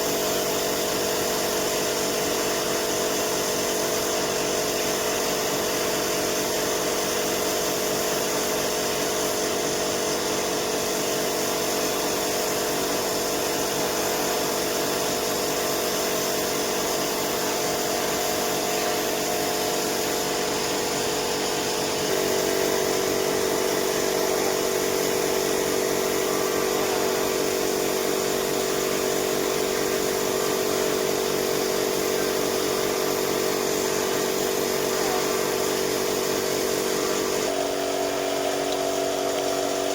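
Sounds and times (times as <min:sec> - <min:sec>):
power tool motor humming: 0:09.0 - 0:39.9.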